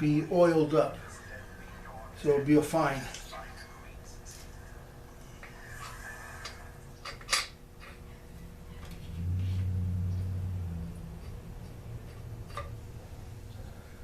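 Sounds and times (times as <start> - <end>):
low rumble: 8.3 - 13.6.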